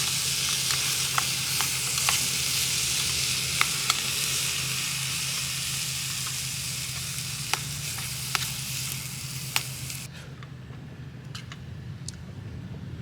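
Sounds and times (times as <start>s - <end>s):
corn sizzling in a pan: 0.0s - 10.1s
sharp pops: 0.0s - 10.1s.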